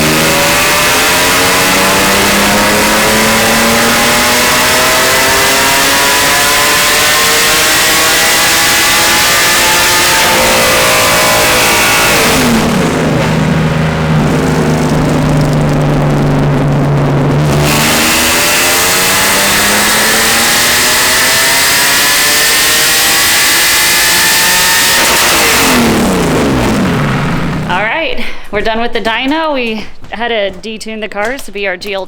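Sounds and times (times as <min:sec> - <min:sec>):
race engine revving: 0:00.0 - 0:27.9.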